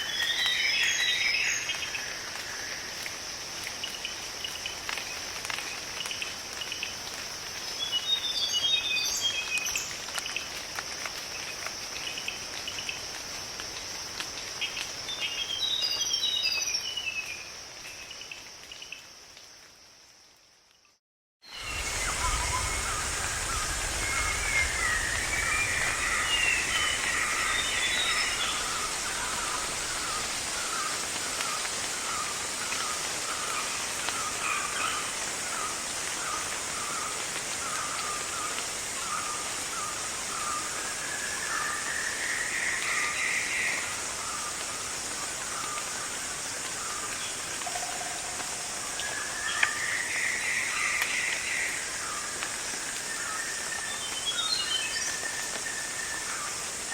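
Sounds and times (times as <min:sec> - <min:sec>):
high insect drone: 0:21.5 - 0:53.0
birds calling: 0:21.6 - 0:35.1.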